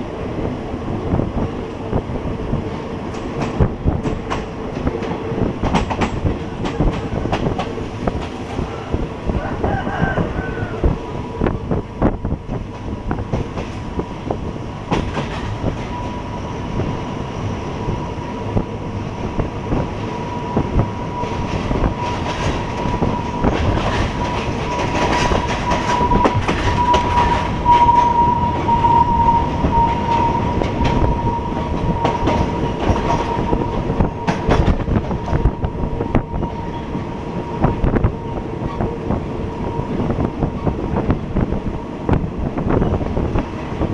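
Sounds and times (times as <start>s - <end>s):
train wheels clacking over rail joints: 3.1s - 8.7s, 14.9s - 16.0s, 21.2s - 36.8s.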